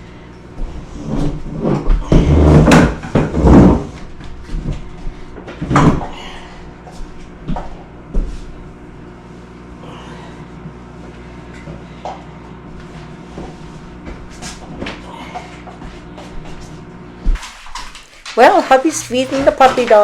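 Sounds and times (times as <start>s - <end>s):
thumps and scrapes: 0.6s - 4.9s, 17.3s - 20.0s.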